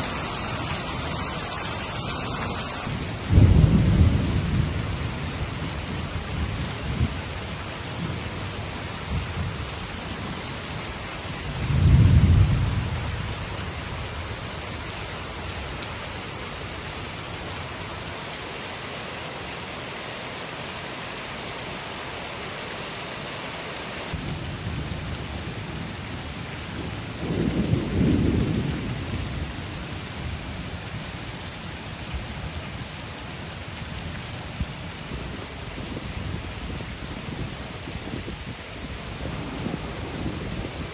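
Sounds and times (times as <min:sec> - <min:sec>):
low thunder rumbling: 0:00.0 - 0:07.3, 0:11.2 - 0:14.8, 0:24.1 - 0:31.2, 0:33.8 - 0:40.9
heavy rain falling: 0:00.0 - 0:40.9.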